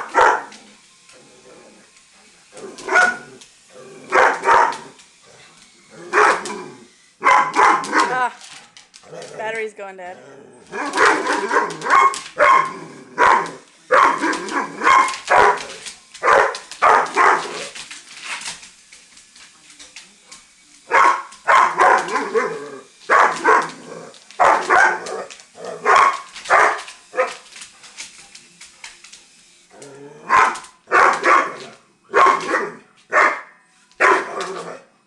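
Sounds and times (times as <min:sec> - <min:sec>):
dog barking rapidly: 0:00.0 - 0:00.5, 0:02.9 - 0:03.3, 0:04.1 - 0:04.9, 0:06.1 - 0:06.5, 0:07.2 - 0:08.1, 0:10.7 - 0:17.6, 0:20.9 - 0:22.5, 0:23.1 - 0:23.7, 0:24.4 - 0:27.3, 0:30.3 - 0:34.4.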